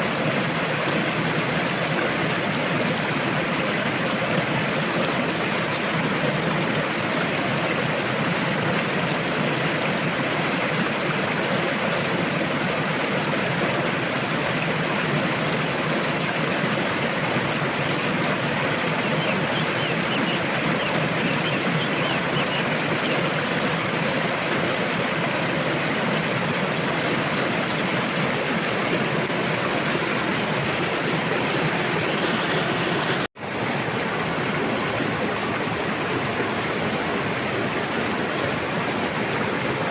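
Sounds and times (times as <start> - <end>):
river rushing: 13.8 - 39.9.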